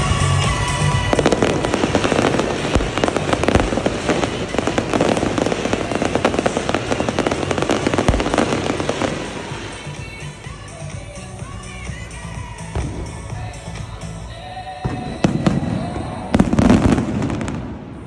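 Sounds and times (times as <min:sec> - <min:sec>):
fireworks crackling and popping: 0:00.0 - 0:18.0.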